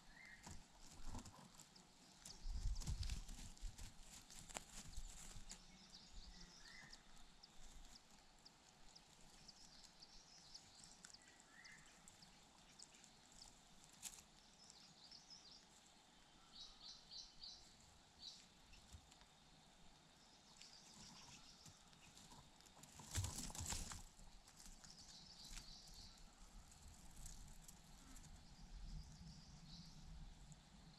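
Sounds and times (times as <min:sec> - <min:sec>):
faint bird chirps: 0:00.0 - 0:00.6, 0:04.7 - 0:19.0, 0:20.1 - 0:22.6, 0:24.1 - 0:30.9.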